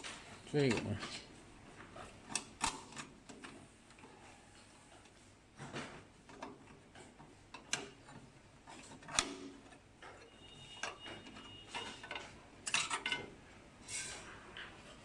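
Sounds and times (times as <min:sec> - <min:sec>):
screwdriver clicks and metal taps: 0:02.3 - 0:04.0, 0:07.5 - 0:13.3.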